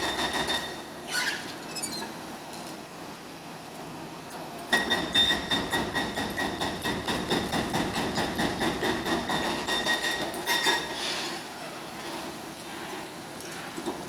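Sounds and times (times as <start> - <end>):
excavator clanking and rattling: 0.0 - 1.3, 4.7 - 11.0.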